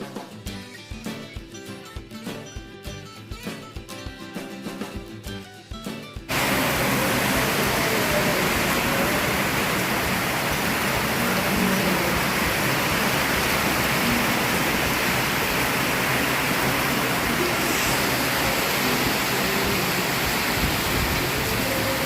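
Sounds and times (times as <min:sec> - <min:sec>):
background music: 0:00.0 - 0:10.3
boat motor running: 0:06.3 - 0:22.0.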